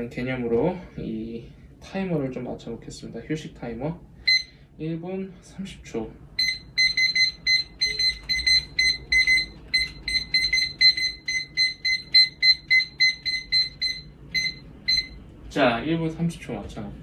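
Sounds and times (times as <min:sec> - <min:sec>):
digital timer beeping: 0:04.3 - 0:04.5, 0:06.4 - 0:15.2.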